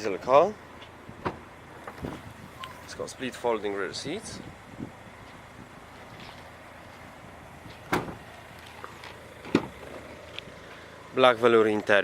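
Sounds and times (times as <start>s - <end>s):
sharp thump: 7.9s - 8.2s.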